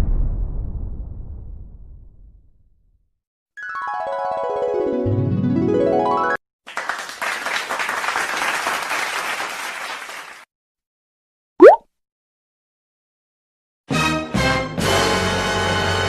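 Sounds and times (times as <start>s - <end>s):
crowd clapping: 6.7s - 10.5s
tone sliding upward: 11.6s - 11.8s.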